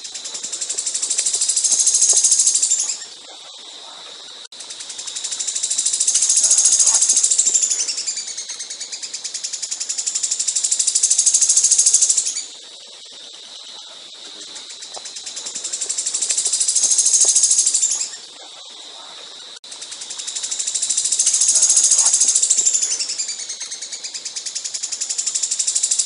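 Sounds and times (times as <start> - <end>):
songbird trilling: 0.2 - 3.1, 5.7 - 9.2, 14.5 - 18.2, 20.7 - 24.1.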